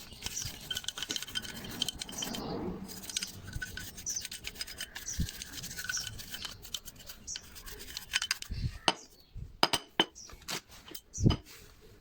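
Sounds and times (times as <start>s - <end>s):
scratchy scrubbing strokes: 0.0s - 8.9s.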